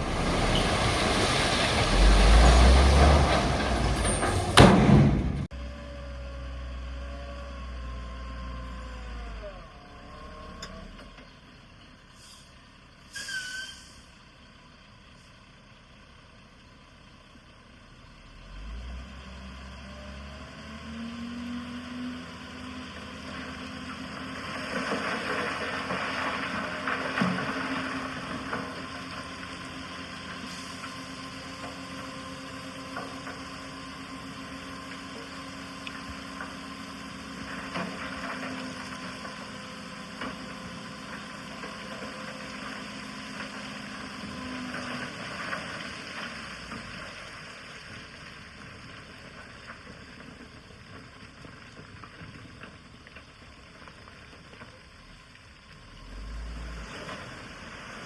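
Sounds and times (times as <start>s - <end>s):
heavy machinery diesel engine running: 0.0s - 13.1s.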